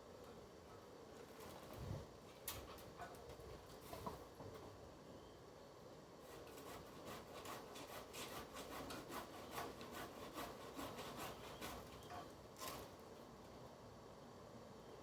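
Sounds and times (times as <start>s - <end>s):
hand saw cutting wood: 6.2s - 12.9s.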